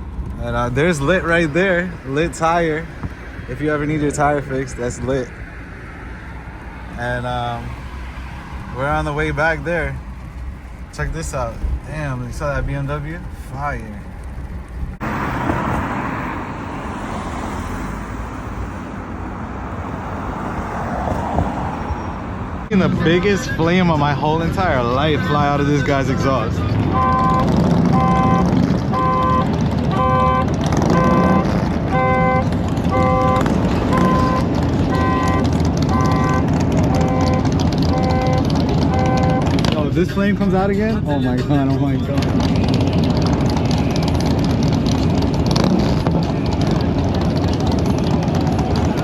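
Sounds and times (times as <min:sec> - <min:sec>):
car engine: 0:00.0 - 0:49.0
traffic noise: 0:00.0 - 0:49.0
car electronic horn notes: 0:26.8 - 0:39.8.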